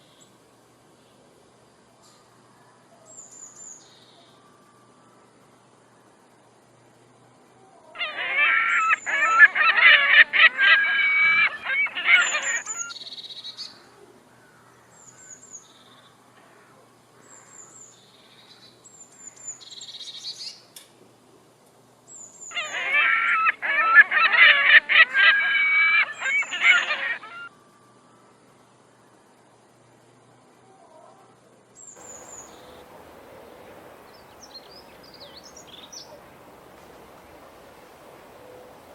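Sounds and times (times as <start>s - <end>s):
magpies harsh nasal calls: 8.0s - 12.9s, 22.5s - 27.5s, 32.0s - 38.9s
high falling chirps: 32.0s - 38.9s.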